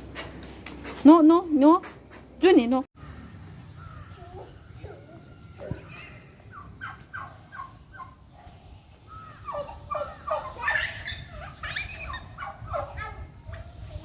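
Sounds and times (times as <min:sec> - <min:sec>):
turkey gobbling: 0:04.2 - 0:08.4, 0:09.1 - 0:13.2.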